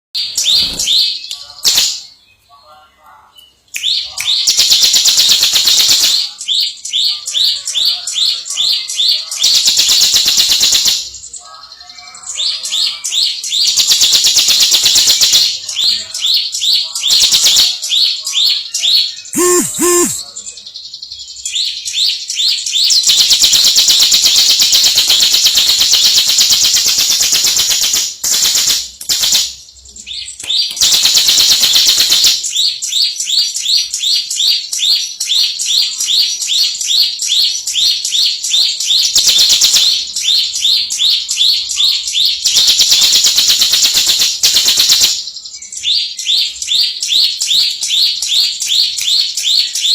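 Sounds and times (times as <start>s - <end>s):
bird singing rapid high notes: 19.3s - 20.2s.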